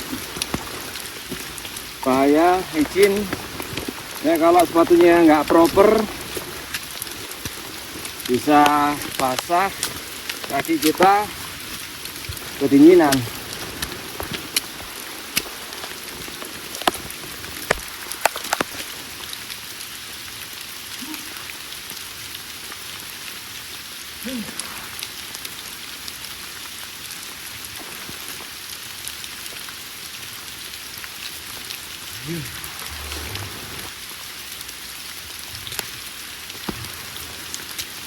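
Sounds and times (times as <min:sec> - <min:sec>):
rain on leaves: 0:00.0 - 0:38.0.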